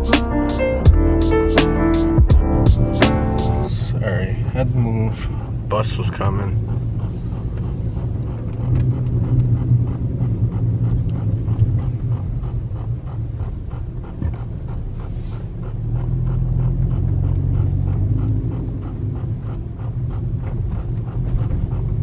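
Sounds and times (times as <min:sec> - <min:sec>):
car idling rumble: 0:00.0 - 0:22.0
even pulsing: 0:00.0 - 0:22.0.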